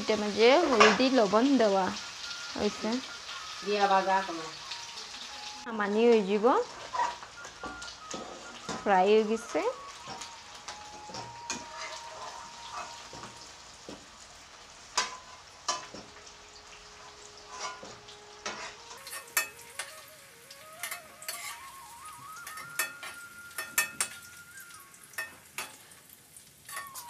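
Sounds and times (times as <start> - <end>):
potatoes sizzling in hot oil: 0.0 - 27.0
metal spoon clicking on pan: 18.4 - 19.9, 22.4 - 24.2, 25.1 - 25.8, 26.7 - 27.0.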